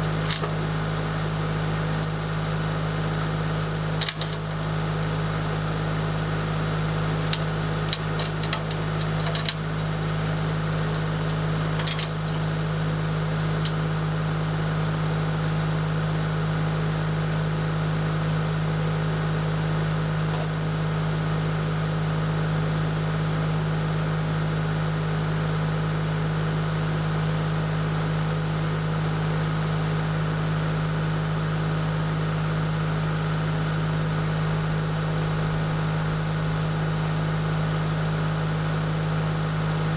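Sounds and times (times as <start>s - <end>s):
engine idling: 0.0s - 16.2s.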